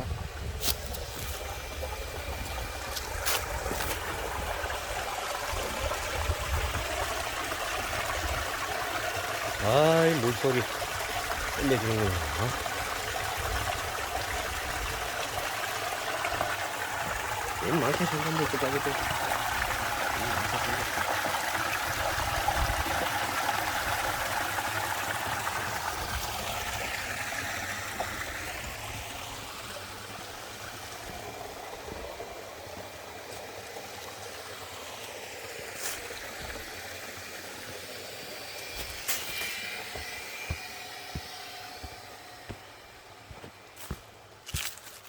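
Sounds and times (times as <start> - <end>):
mountain stream rushing: 2.8 - 12.9.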